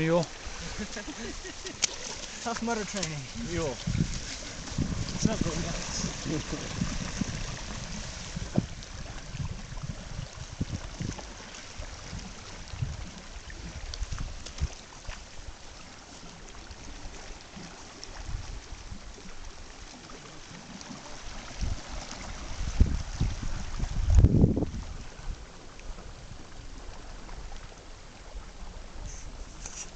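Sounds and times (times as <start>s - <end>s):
river water rushing: 0.0s - 9.8s, 14.8s - 25.8s.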